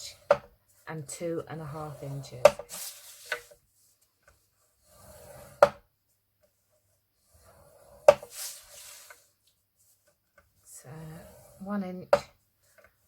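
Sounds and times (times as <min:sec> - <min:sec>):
scoring tool scraping card: 0:01.2 - 0:03.6, 0:07.2 - 0:09.3.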